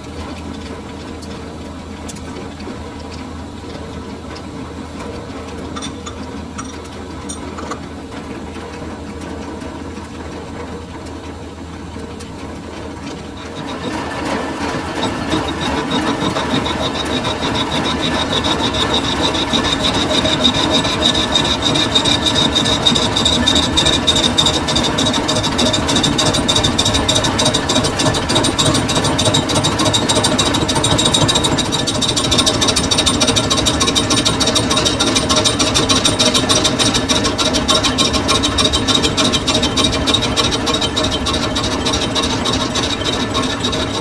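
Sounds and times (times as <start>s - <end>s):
metal lathe running: 13.2s - 44.0s.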